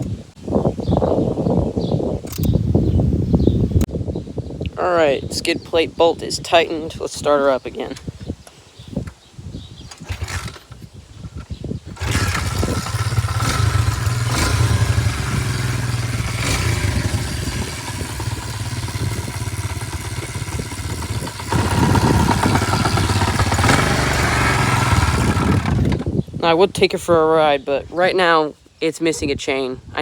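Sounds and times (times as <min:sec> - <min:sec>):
small motorcycle engine running: 0:10.0 - 0:10.7, 0:11.9 - 0:26.2.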